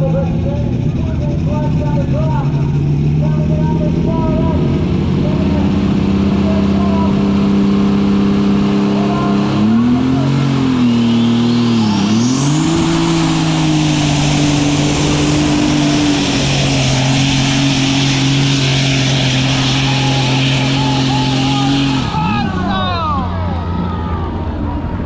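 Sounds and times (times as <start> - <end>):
tractor diesel engine under load: 0.0 - 25.0
high turbo whistle: 10.5 - 22.6.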